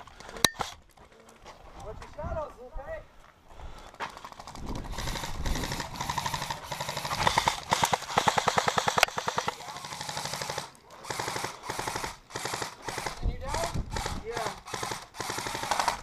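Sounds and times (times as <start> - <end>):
airsoft gun automatic fire: 4.3 - 16.0.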